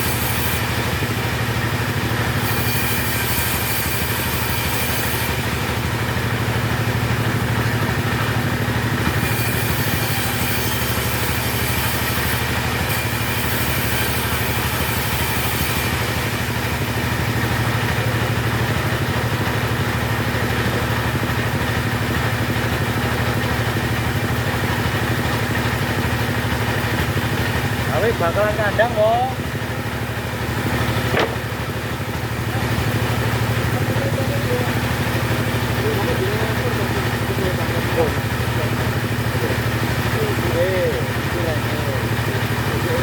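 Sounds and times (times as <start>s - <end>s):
chainsaw engine idling: 0.0s - 43.0s.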